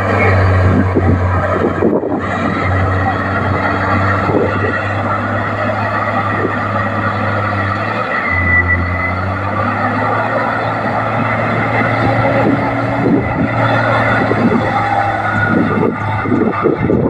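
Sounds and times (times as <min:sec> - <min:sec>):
bulldozer diesel engine running: 0:00.0 - 0:17.0
short high squeal: 0:08.2 - 0:09.4.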